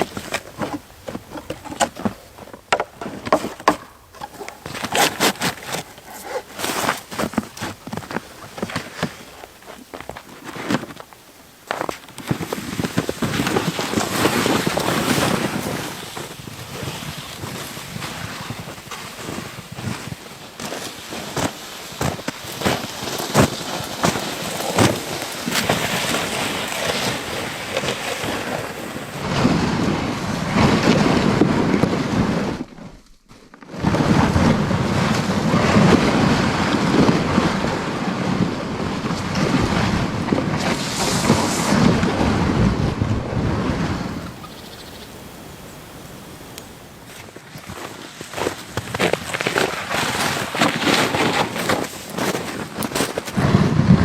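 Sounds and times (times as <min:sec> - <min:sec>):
wind gusting across microphone: 0:00.0 - 0:33.0, 0:33.7 - 0:54.0.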